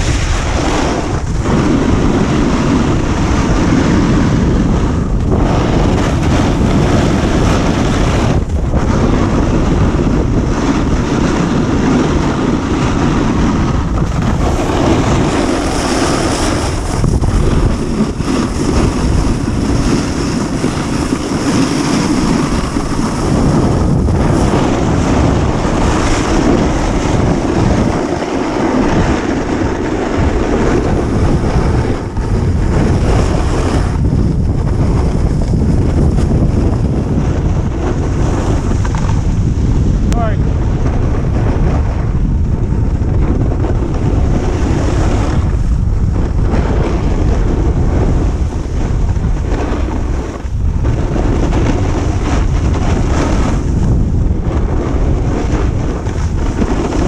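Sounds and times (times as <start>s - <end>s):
snowboard scraping over snow: 0.0s - 57.0s
wind buffeting microphone: 0.0s - 57.0s.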